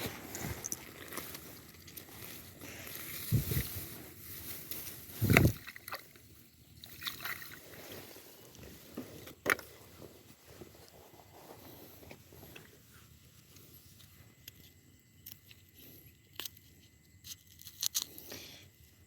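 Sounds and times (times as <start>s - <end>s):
shallow water sloshing and splashing: 5.2s - 8.4s.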